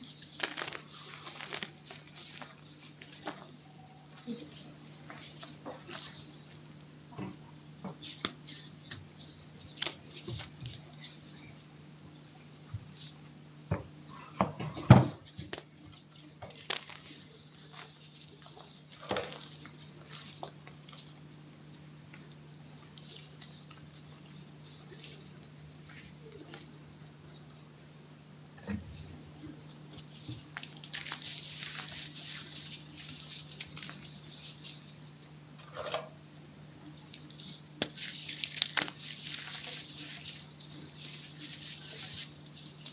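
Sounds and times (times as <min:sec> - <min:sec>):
chalk crunching: 0:00.0 - 0:06.8, 0:15.6 - 0:28.1, 0:30.0 - 0:35.4, 0:36.3 - 0:42.9
faint steady hum: 0:00.0 - 0:42.9.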